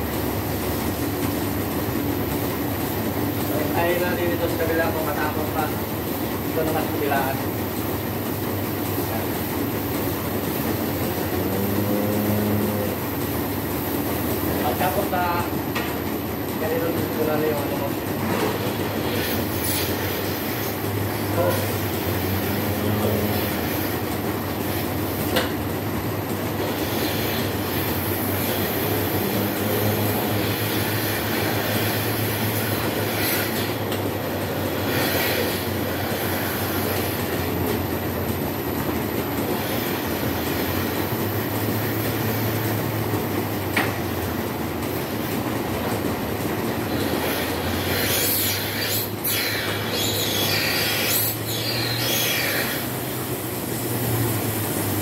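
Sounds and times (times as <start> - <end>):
machinery humming: 0.0 - 55.0.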